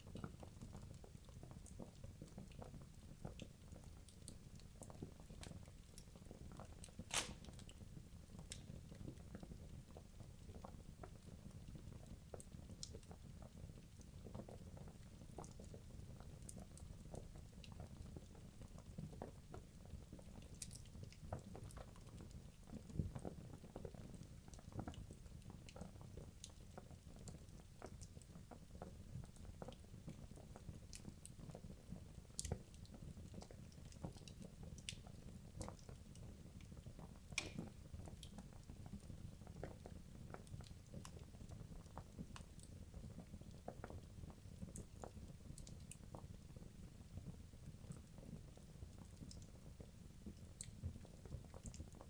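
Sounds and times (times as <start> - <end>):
fire crackles and pops: 7.1 - 7.7, 37.4 - 46.1
logs burning in fireplace: 7.1 - 7.7, 29.2 - 52.0.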